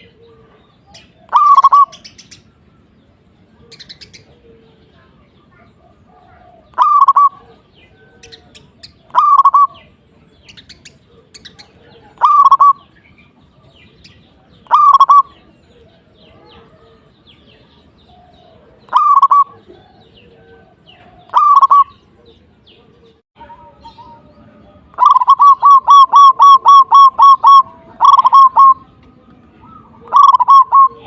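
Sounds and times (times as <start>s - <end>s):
dove cooing: 0.0s - 2.3s, 5.8s - 10.0s, 10.8s - 13.0s, 14.4s - 29.0s, 29.6s - 31.0s
small birds chirping: 0.0s - 31.0s.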